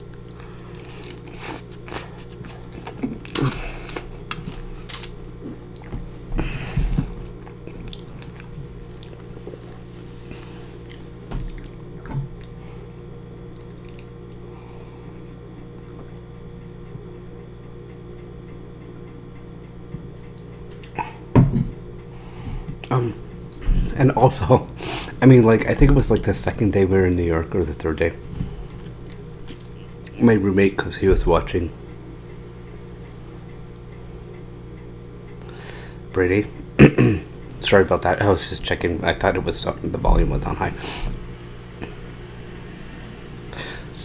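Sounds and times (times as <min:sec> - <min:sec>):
chewing fries: 0:00.0 - 0:14.5, 0:28.7 - 0:30.2
steady low hum: 0:00.0 - 0:44.0.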